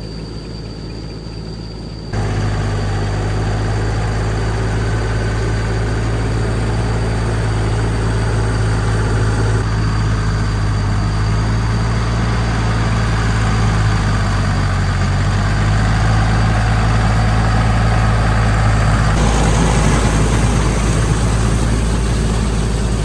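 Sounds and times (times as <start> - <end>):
old tractor engine running: 2.2 - 23.0.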